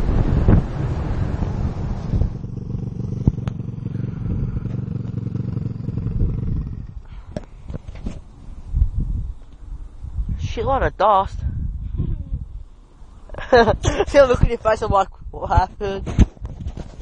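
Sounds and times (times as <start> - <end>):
motorbike engine at low revs: 0.0 - 10.3
wind noise on microphone: 0.0 - 17.0.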